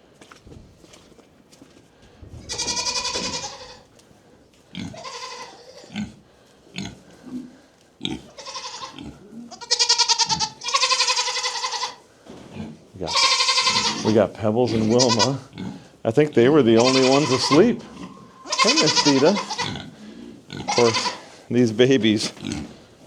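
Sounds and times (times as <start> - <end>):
goats bleating: 2.4 - 3.9, 4.7 - 6.1, 8.0 - 12.0, 13.0 - 21.4.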